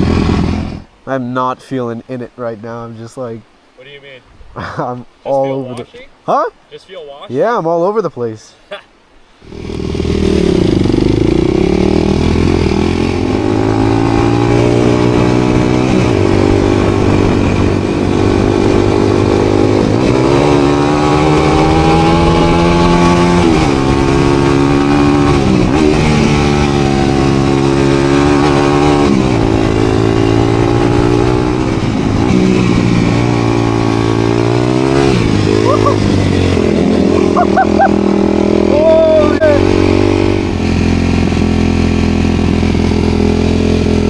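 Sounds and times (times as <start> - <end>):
dirt bike engine revving: 0.0 - 1.0, 9.4 - 44.0.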